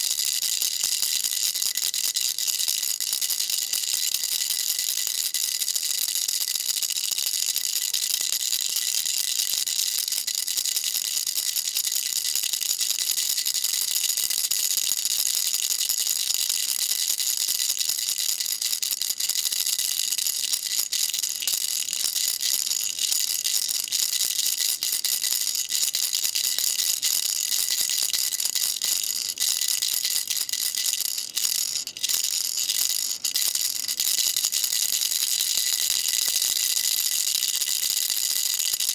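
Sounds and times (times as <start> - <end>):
baby rattle shaking: 16.6 - 38.9.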